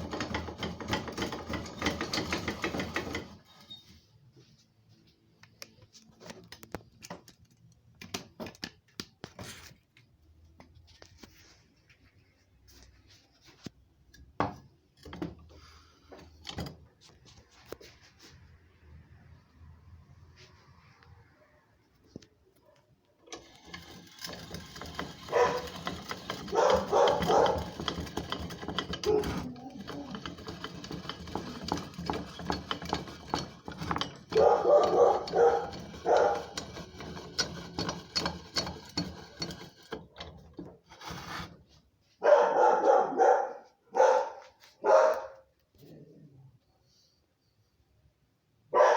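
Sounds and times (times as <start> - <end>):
dog barking: 25.3 - 25.6, 26.5 - 27.7, 34.4 - 36.4, 42.2 - 45.4.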